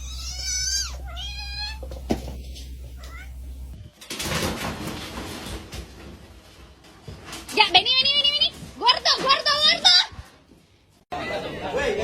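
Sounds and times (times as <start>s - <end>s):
cat meowing: 0.0s - 1.9s, 2.9s - 3.4s.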